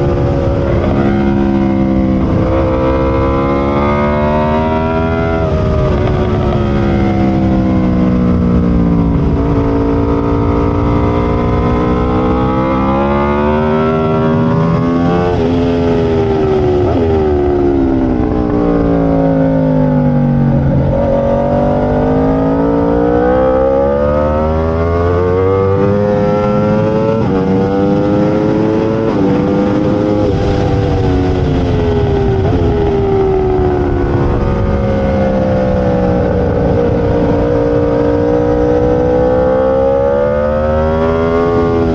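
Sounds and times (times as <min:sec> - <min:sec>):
motorcycle engine revving through gears: 0:00.0 - 0:41.9.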